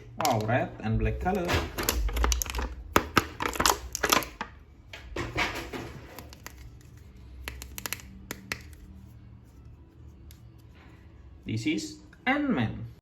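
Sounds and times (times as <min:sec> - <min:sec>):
plastic toy clicking and scratching: 0:01.5 - 0:04.5, 0:05.5 - 0:08.9.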